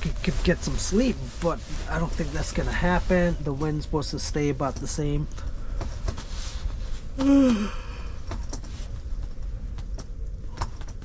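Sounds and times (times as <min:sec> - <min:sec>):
steady low rumble: 0:00.0 - 0:11.0
short falling voiced hum: 0:07.2 - 0:07.8
man sighing: 0:07.2 - 0:08.2.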